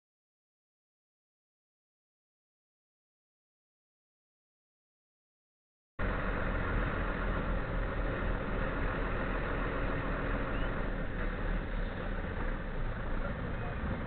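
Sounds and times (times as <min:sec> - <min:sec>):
car engine and road rumble: 0:06.0 - 0:14.0.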